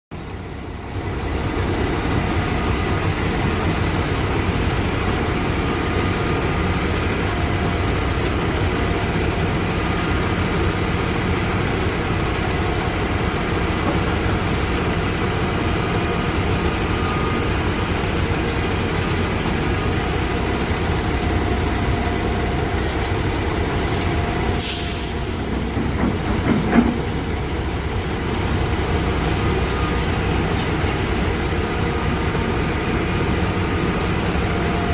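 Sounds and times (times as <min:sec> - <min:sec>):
diesel construction machinery running: 0:00.1 - 0:34.9
air hiss: 0:24.6 - 0:25.3.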